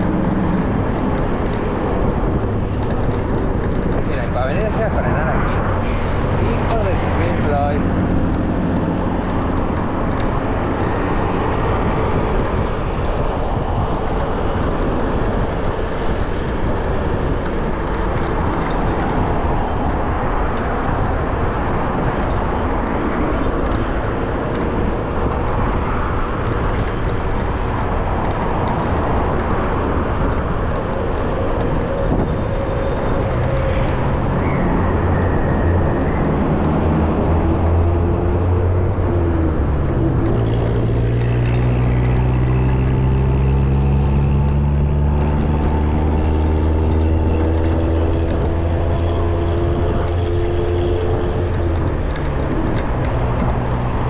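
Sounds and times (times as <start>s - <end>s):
city traffic noise: 0.0s - 54.0s
vehicle engine hum: 0.0s - 54.0s.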